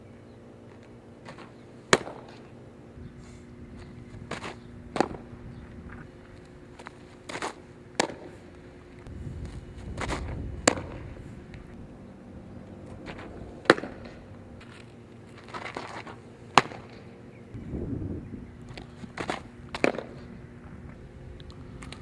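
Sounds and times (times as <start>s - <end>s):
softball smacks: 1.3s - 2.4s, 7.4s - 8.3s, 16.5s - 17.0s.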